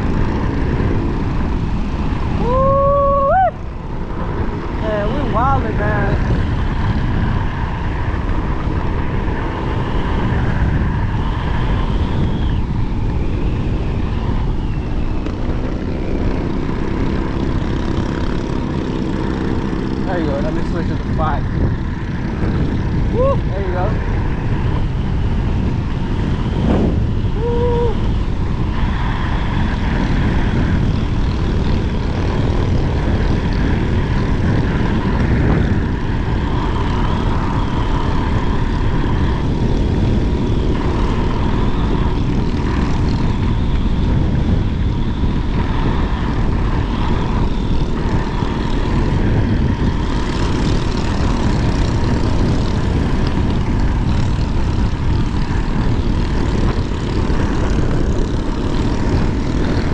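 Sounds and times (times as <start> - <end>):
steady high whine: 0.0 - 59.9
wind rushing over microphone: 0.0 - 59.9
person shouting: 2.4 - 3.6, 23.1 - 23.5, 27.4 - 28.0.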